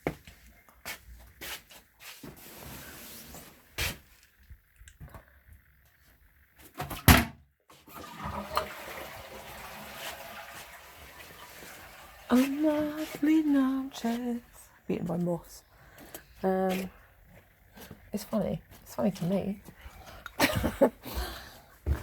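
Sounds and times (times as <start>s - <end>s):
rustling noise: 0.0s - 4.4s.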